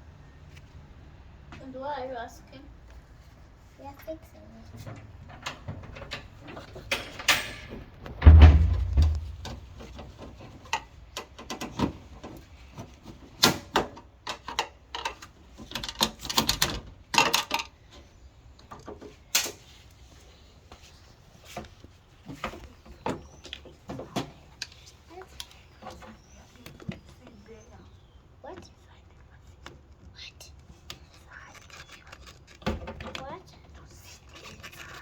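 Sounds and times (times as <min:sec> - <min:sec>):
objects knocking and clattering: 0:04.8 - 0:17.8
heavy thump: 0:08.1 - 0:10.1.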